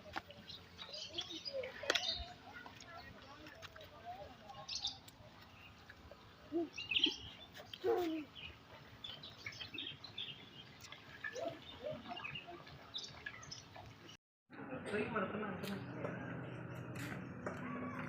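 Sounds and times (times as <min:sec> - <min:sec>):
birds chirping: 0:00.0 - 0:14.2.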